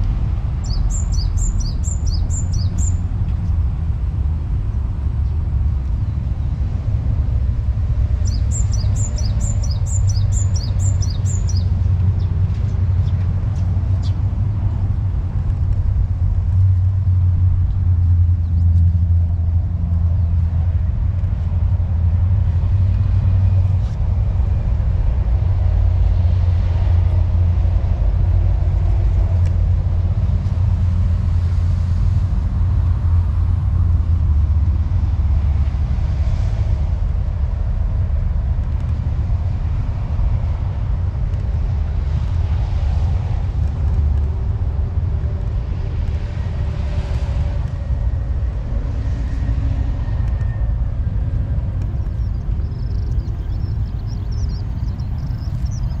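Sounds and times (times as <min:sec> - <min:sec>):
steady low rumble: 0:00.0 - 0:56.0
bird chirping: 0:00.6 - 0:03.0, 0:08.2 - 0:12.3, 0:52.0 - 0:56.0.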